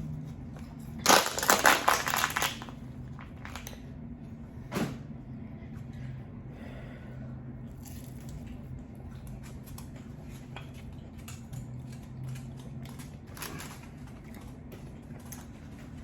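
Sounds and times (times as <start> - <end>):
person chewing noodles: 7.6 - 16.0.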